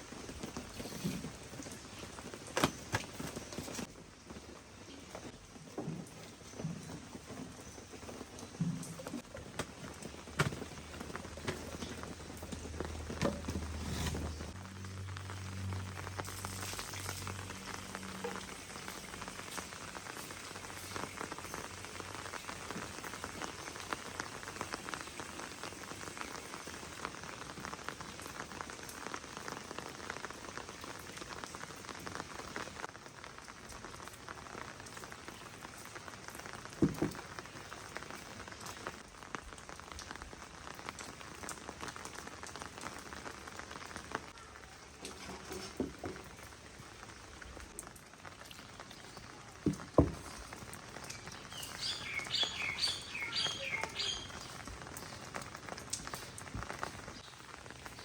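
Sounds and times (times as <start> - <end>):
rain patter on a surface: 0.0 - 58.0.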